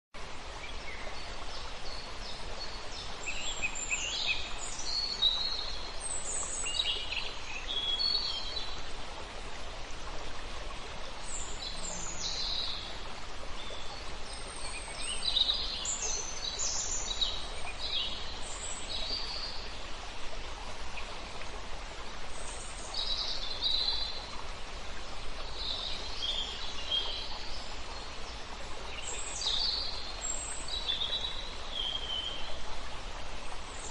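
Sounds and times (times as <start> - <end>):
songbirds singing: 10.7 - 19.9, 25.4 - 32.6.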